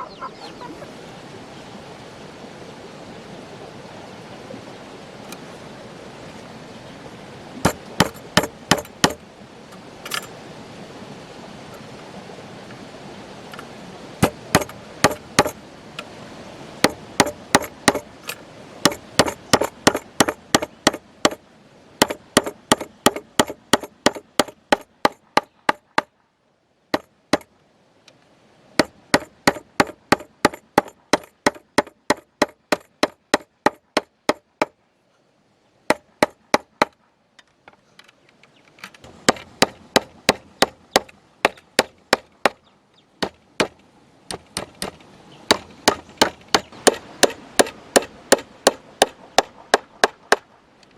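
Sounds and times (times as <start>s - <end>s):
hand tool striking wood: 7.6s - 9.2s, 10.0s - 10.3s, 13.6s - 15.6s, 16.8s - 21.4s, 22.0s - 26.1s, 27.0s - 27.5s, 28.8s - 34.8s, 35.9s - 37.0s, 39.0s - 42.6s, 43.2s - 50.5s.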